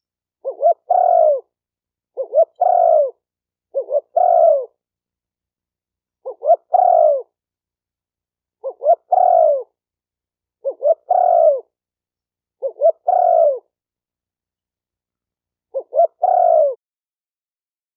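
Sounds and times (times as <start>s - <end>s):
dove cooing: 0.4s - 4.8s, 6.2s - 7.4s, 8.6s - 9.8s, 10.6s - 11.8s, 12.6s - 13.8s, 15.7s - 16.8s.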